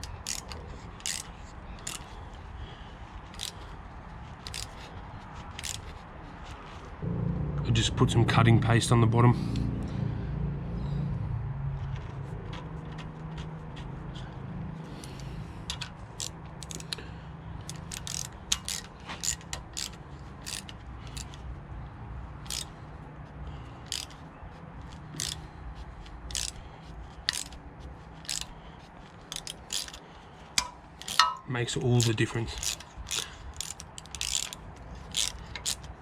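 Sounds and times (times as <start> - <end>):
steady low hum: 7.0 - 29.3.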